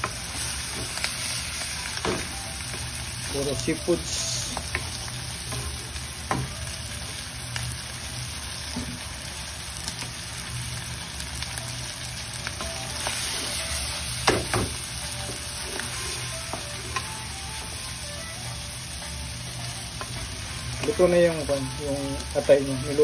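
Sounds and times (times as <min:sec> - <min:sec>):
seafood sizzling in a frying pan: 0:00.0 - 0:23.0
wooden spatula scraping a pan: 0:15.5 - 0:17.0.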